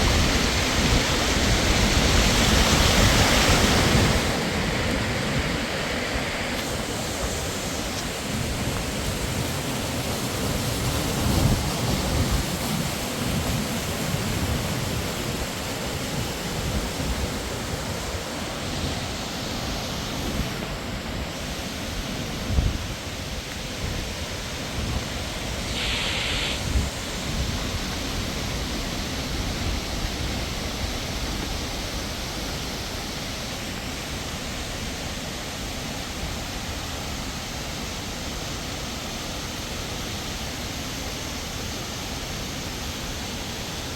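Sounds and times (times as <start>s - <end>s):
wind buffeting microphone: 0.0s - 32.6s
waterfall rushing: 0.0s - 43.9s.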